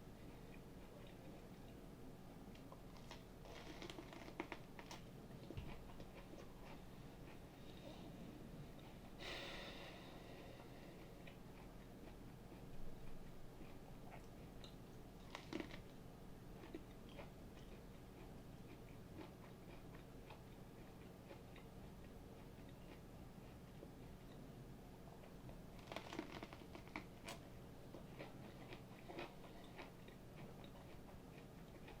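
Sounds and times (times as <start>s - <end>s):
cucumber crunching and chewing: 2.5s - 7.8s, 11.0s - 24.4s, 25.1s - 32.0s.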